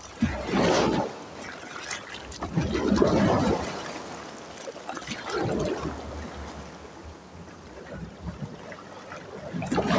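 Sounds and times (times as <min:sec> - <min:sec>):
waves washing against rocks: 0:00.0 - 0:06.8, 0:09.4 - 0:09.9
trickling water: 0:07.7 - 0:09.9.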